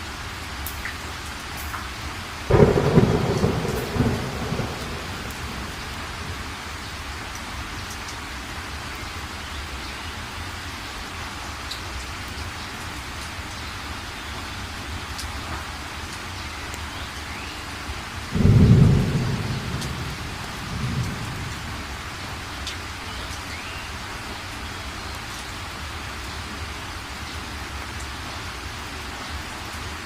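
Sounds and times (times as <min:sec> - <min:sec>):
heavy rain: 0:00.0 - 0:30.0
thunder clap and rumble: 0:02.5 - 0:06.7, 0:18.4 - 0:22.1.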